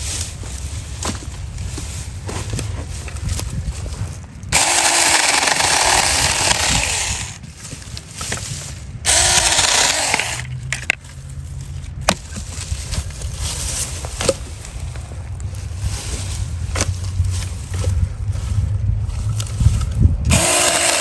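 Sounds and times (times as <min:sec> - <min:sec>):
electric chainsaw cutting branches: 0:04.5 - 0:07.5, 0:09.1 - 0:10.9, 0:20.3 - 0:21.0.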